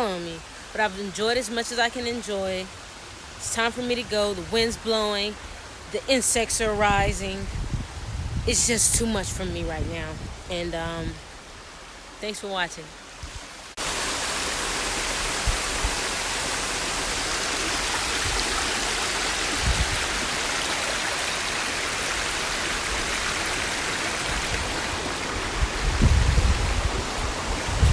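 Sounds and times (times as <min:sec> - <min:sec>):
rushing stream or waterfall: 0:00.0 - 0:27.9
wind thumps on microphone: 0:06.9 - 0:10.6, 0:15.2 - 0:16.1, 0:19.4 - 0:20.4, 0:24.2 - 0:27.9.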